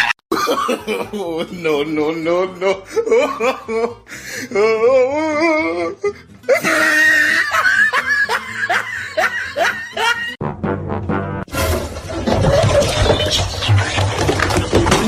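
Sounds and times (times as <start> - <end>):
person laughing hard: 0.0 - 1.6, 2.5 - 4.1, 6.5 - 10.4.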